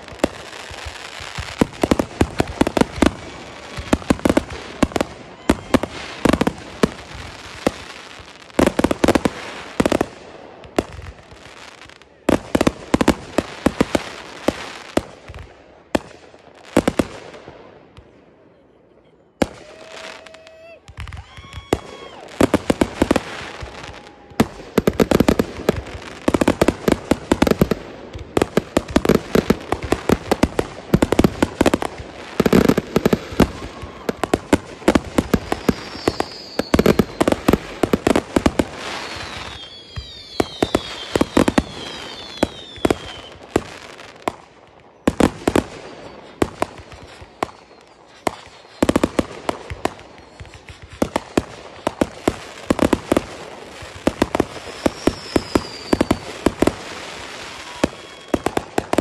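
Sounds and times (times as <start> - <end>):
fireworks pops and bangs: 0.0 - 18.2, 19.3 - 59.0
fireworks whistles falling in pitch: 0.2 - 10.0, 18.5 - 27.8, 28.8 - 59.0.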